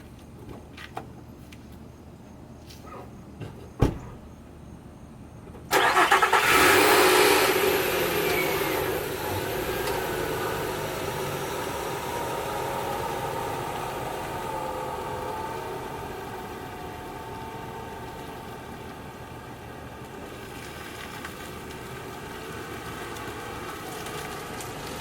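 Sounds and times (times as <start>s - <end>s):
engine cranking and idling: 0.0s - 22.2s
thump: 2.9s - 4.4s.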